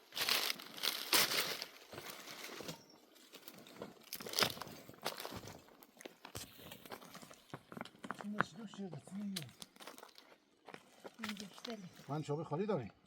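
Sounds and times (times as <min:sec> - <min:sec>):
rustling and crinkling handling noise: 0:00.0 - 0:12.1.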